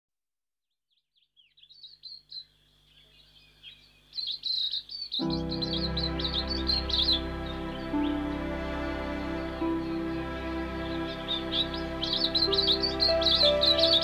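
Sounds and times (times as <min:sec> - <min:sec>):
bird chirping: 0:00.9 - 0:14.0
soft music with held chords: 0:05.2 - 0:14.0.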